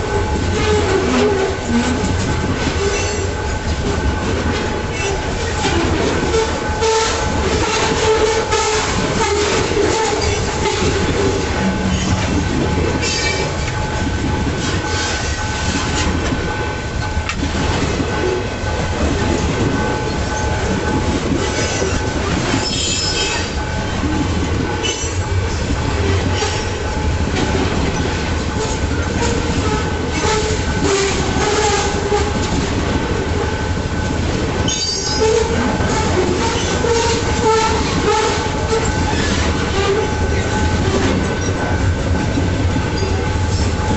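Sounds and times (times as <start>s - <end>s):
train wheels clacking: 0.0s - 43.9s
wheels squealing on rails: 0.3s - 16.2s, 17.0s - 43.9s.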